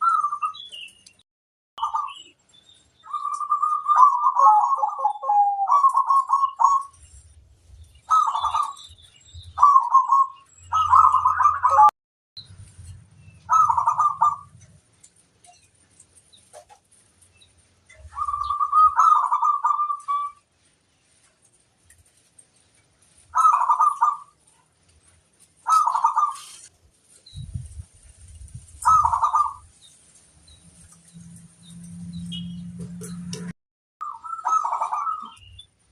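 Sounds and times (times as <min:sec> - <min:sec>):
dove cooing: 0:03.1 - 0:06.9, 0:08.1 - 0:08.8, 0:09.6 - 0:11.9, 0:13.5 - 0:14.6, 0:18.1 - 0:20.4, 0:23.4 - 0:24.4, 0:25.7 - 0:26.7, 0:28.8 - 0:29.6, 0:34.2 - 0:35.4.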